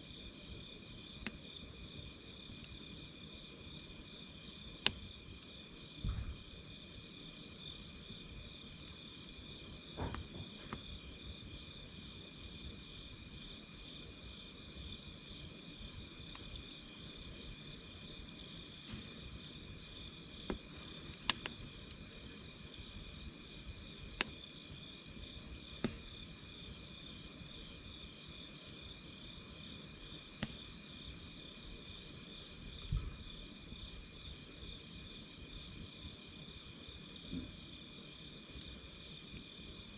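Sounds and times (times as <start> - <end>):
campfire crackling: 0.0 - 39.9
crickets chirping: 0.0 - 39.9
fire popping sharply: 6.0 - 6.6, 9.8 - 11.3, 18.7 - 24.5, 25.2 - 27.9.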